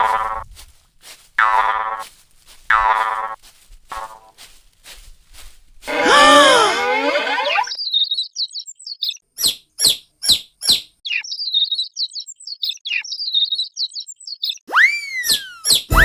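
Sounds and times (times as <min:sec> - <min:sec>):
baby chicks peeping: 0:07.6 - 0:14.7.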